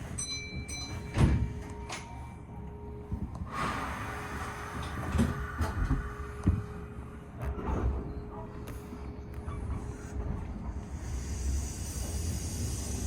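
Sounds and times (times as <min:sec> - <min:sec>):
train rumble: 0:00.0 - 0:13.0
hiss: 0:10.9 - 0:13.0.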